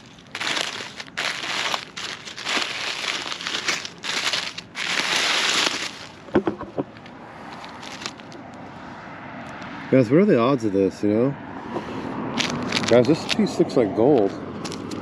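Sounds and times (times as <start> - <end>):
dry debris crunching and crinkling: 0.0 - 8.6, 12.4 - 15.0.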